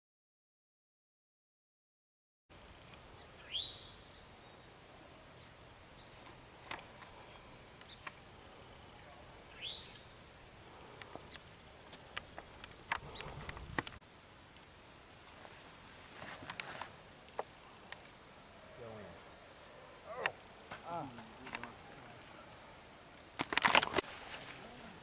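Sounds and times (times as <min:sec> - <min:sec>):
bird calls: 0:03.1 - 0:14.0.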